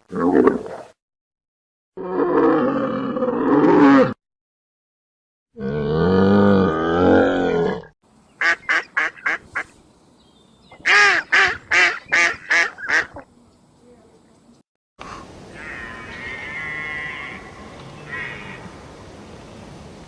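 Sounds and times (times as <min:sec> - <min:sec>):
duck or goose honking: 0:10.9 - 0:13.2
long low animal call: 0:15.2 - 0:18.8.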